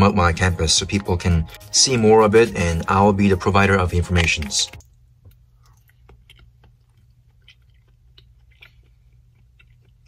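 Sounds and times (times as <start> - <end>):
soft chewing crunches: 4.2 - 10.0.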